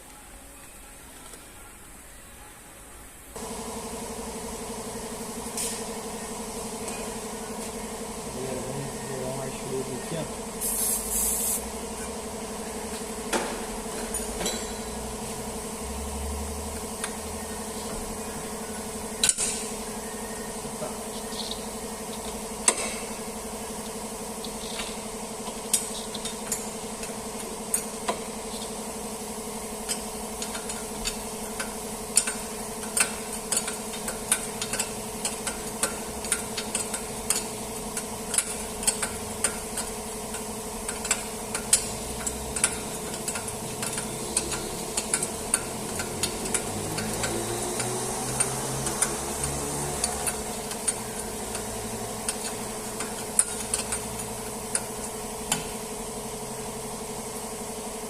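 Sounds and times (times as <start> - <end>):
hand tools clicking on metal: 29.9 - 55.7.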